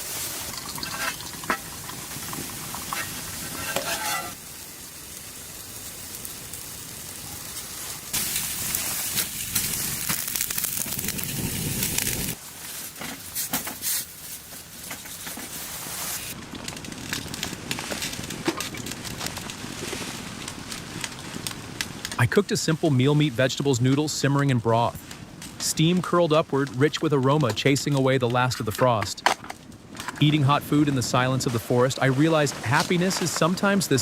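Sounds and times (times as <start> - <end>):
food sizzling in a pan: 0.0 - 16.4
utensil stirring and scraping: 2.9 - 4.4.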